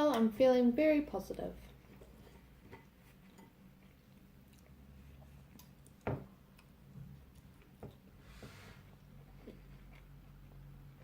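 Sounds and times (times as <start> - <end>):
low steady hum: 0.0 - 11.0
quiet chewing: 1.6 - 11.0.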